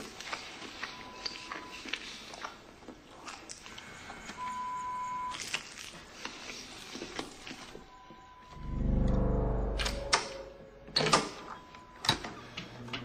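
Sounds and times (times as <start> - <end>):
man chewing crunchy chocolate: 0.0 - 4.5, 5.3 - 7.9
electronic beep: 7.9 - 11.0.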